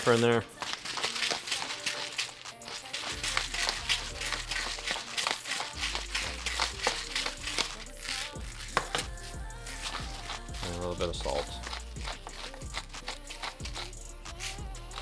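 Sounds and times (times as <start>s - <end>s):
pepper grinder crackling clicks: 0.2s - 9.0s.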